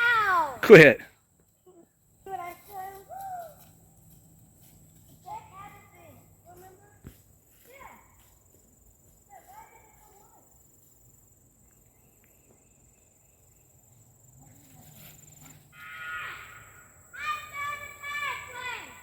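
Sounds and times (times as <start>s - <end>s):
child's voice: 0.0s - 0.7s, 1.7s - 3.6s, 5.2s - 7.0s, 7.6s - 8.2s, 9.3s - 10.4s, 17.2s - 19.0s
high-pitched insect buzz: 10.1s - 19.0s.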